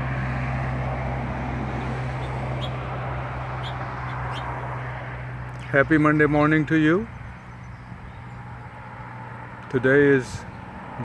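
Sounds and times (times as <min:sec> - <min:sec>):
constant low hum: 0:00.0 - 0:11.0
high bird chirps: 0:01.7 - 0:04.6.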